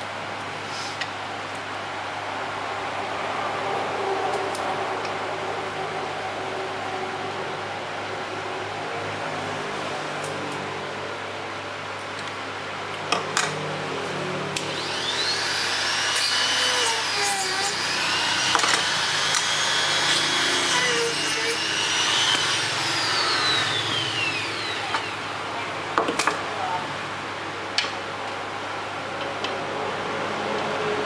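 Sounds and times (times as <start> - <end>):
power tool motor whine: 14.6 - 25.3.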